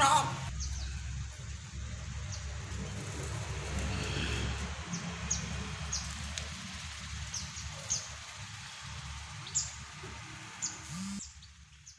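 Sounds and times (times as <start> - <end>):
bird chirping: 0.0 - 1.2, 10.6 - 11.9.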